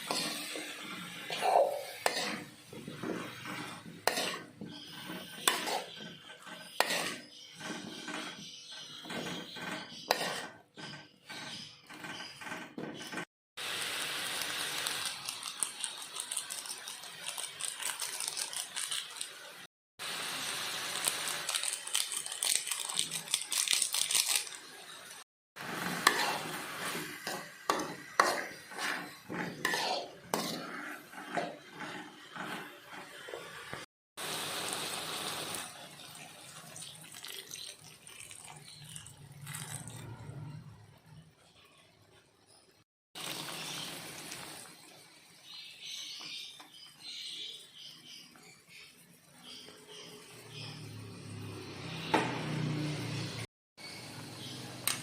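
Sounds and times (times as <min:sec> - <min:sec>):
steady cooking hiss: 0:00.0 - 0:06.0, 0:13.6 - 0:23.1, 0:24.2 - 0:37.6, 0:43.2 - 0:50.6.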